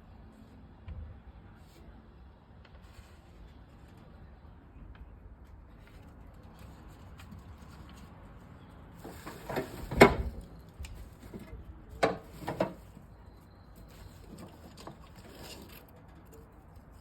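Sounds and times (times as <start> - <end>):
handling knocks and clatters: 9.0 - 13.1.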